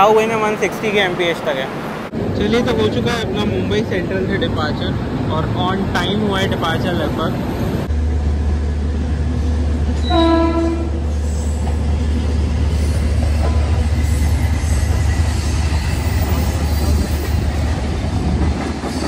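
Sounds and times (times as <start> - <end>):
train coaches rumbling: 0.0 - 19.0
train horn toot: 10.0 - 11.0.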